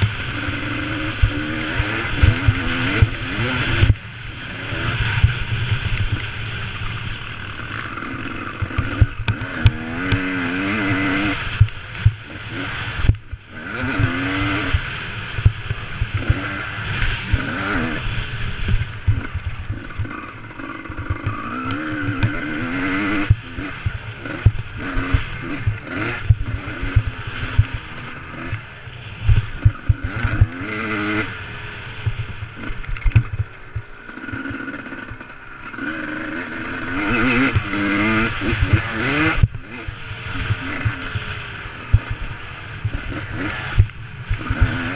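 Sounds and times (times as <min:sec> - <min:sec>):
motocross bike engine revving: 0:00.0 - 0:44.9
low thumps and clatter: 0:05.0 - 0:10.4, 0:11.1 - 0:12.4, 0:13.0 - 0:14.8, 0:18.6 - 0:28.6, 0:32.0 - 0:35.4, 0:41.8 - 0:44.9.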